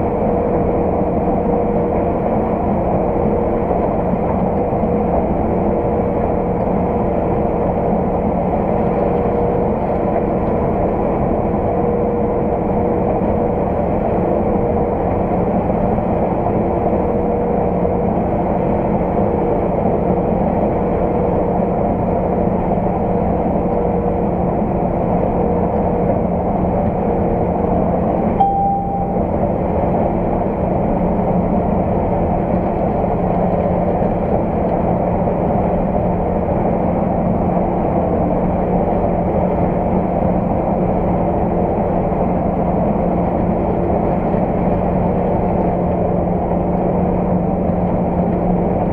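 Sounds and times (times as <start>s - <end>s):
farm machinery engine drone: 0.0s - 48.9s
short beep: 28.4s - 29.3s.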